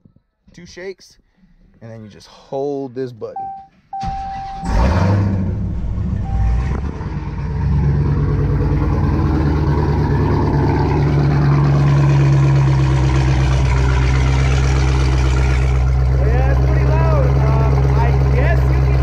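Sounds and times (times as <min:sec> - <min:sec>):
short beep: 0:03.4 - 0:04.9, 0:06.2 - 0:06.8
loud rumbling engine idle: 0:05.6 - 0:19.0.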